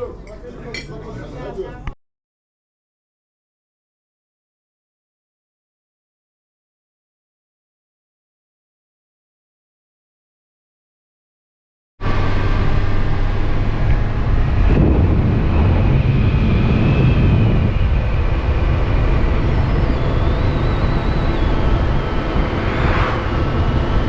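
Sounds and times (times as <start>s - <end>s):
motorcycle engine at road speed: 12.0s - 24.0s
wind noise: 12.0s - 24.0s.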